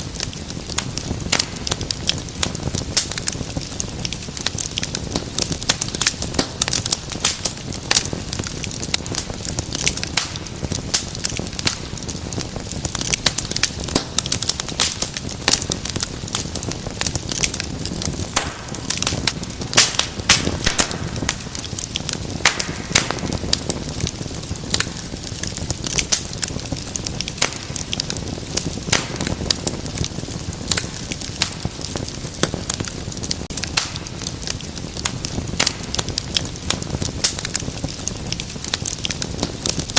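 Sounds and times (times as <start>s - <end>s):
fireplace fire crackling: 0.0s - 39.9s.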